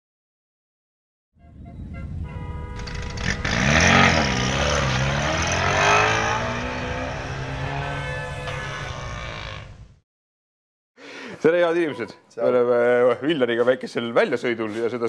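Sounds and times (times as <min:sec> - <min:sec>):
car engine revving hard: 0:02.8 - 0:09.8.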